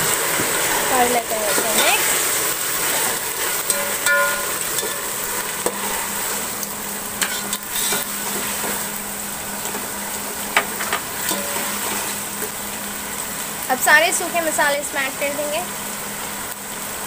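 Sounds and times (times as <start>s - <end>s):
vegetables sizzling in hot oil: 0.0s - 17.0s
ladle scraping metal pot: 1.5s - 6.2s, 7.2s - 8.8s.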